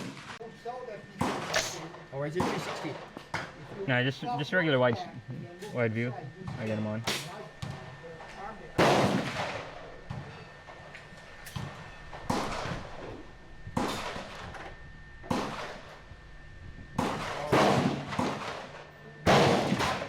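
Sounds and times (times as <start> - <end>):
gunshots with echo: 8.8 - 9.7, 17.0 - 20.0.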